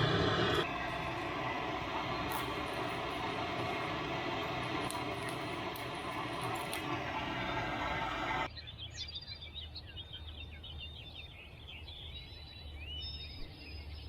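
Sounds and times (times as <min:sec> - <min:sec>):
faint low hum: 0:00.0 - 0:08.5
loud steady rushing noise: 0:00.0 - 0:08.5
small birds chirping: 0:00.6 - 0:14.0.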